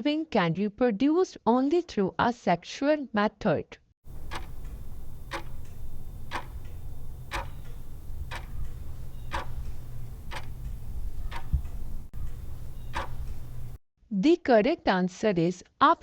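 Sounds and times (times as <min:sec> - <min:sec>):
clock ticking: 0:04.1 - 0:13.8
steady low hum: 0:04.1 - 0:13.8.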